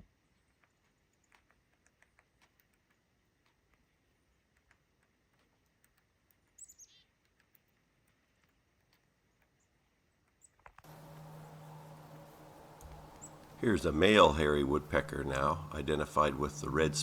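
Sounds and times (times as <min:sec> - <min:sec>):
faint ticks: 0:00.0 - 0:09.6, 0:10.3 - 0:14.2
short falling bird call: 0:10.9 - 0:17.0.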